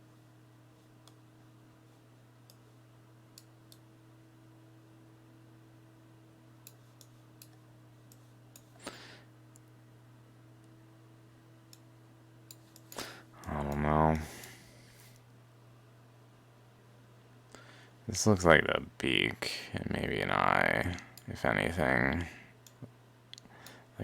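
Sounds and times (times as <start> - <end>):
computer mouse clicks: 6.6 - 8.8, 12.5 - 13.0.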